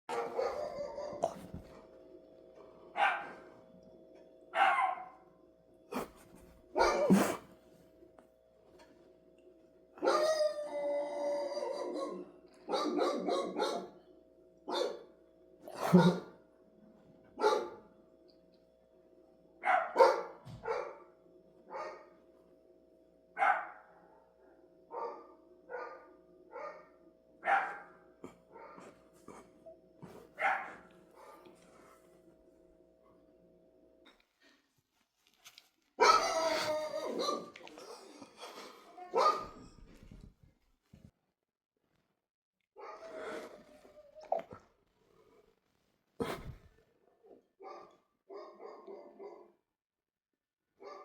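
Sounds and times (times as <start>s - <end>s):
dog barking: 0.1s - 1.5s, 3.0s - 3.4s, 4.6s - 5.2s, 6.8s - 7.4s, 10.0s - 10.4s, 11.7s - 14.0s, 14.7s - 15.1s, 15.7s - 16.4s, 17.4s - 17.9s, 19.6s - 21.1s, 21.7s - 22.1s, 23.4s - 24.3s, 24.9s - 28.9s, 30.4s - 31.5s, 36.0s - 37.7s, 39.1s - 39.7s, 42.8s - 43.2s, 47.6s - 49.6s, 50.8s - 51.0s.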